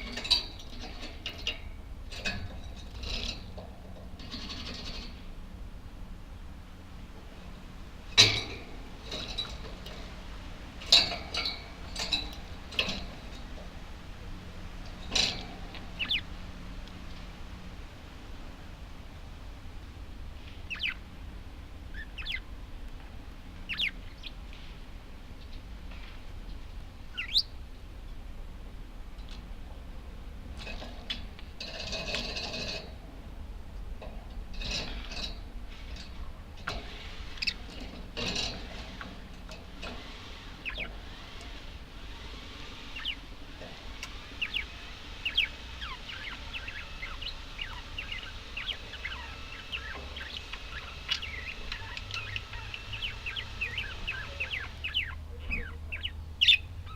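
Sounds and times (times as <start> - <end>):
faint steady hum: 0.0 - 56.9
budgerigars chattering: 15.0 - 16.4, 20.6 - 21.1, 21.9 - 22.5, 23.6 - 24.4, 27.1 - 27.6, 36.6 - 56.9.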